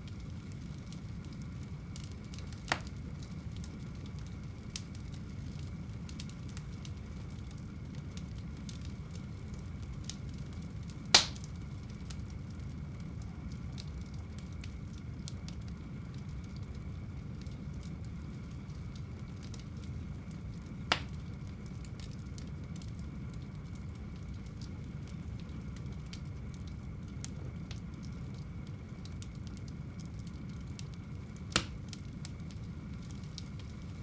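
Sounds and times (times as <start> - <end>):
fire popping: 0.0 - 34.0
wood fire burning: 0.0 - 34.0.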